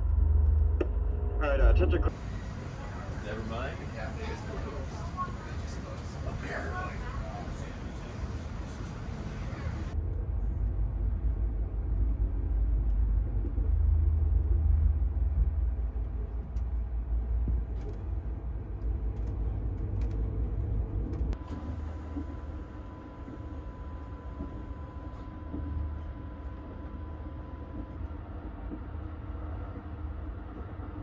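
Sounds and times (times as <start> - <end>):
train rumbling: 0.0 - 31.0
faint steady whine: 1.4 - 11.8.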